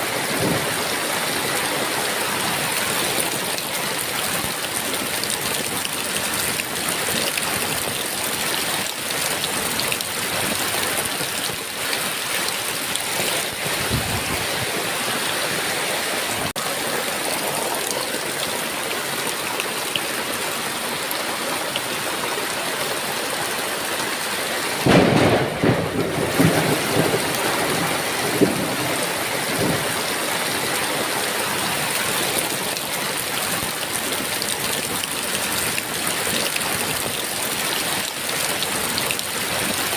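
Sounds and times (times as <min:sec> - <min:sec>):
heavy rain falling: 0:00.0 - 0:39.9
thunder rumbling: 0:13.2 - 0:15.0, 0:24.8 - 0:30.0.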